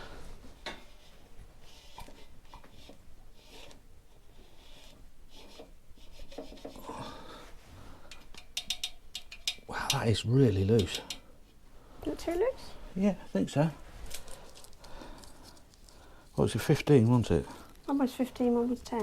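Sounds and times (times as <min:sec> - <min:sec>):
metal feeler gauge scraping: 0:08.1 - 0:11.3.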